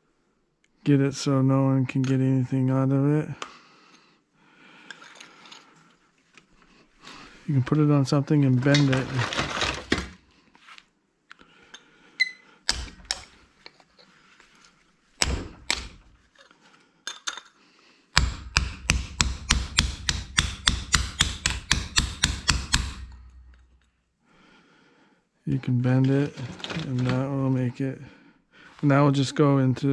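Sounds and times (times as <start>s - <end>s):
hammer striking metal platter: 12.7s - 13.4s, 15.2s - 16.1s, 18.2s - 23.7s.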